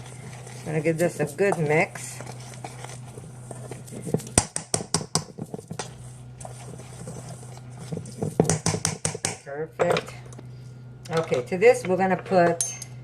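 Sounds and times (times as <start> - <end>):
utensil stirring dry mix in bowl: 0.0 - 9.4.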